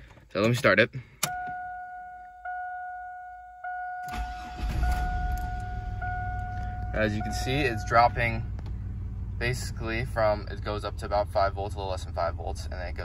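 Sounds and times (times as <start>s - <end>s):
car engine starting and running: 0.0s - 13.0s
dashboard warning chime: 1.2s - 9.0s.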